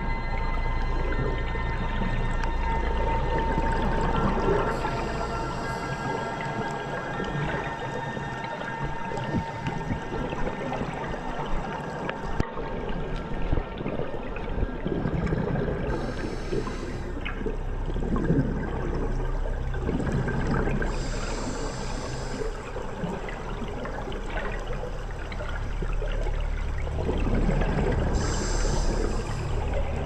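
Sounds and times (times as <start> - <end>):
bubbling and gurgling: 0.0 - 30.0
regulator air hiss: 4.7 - 6.8, 20.9 - 22.7, 28.2 - 29.7.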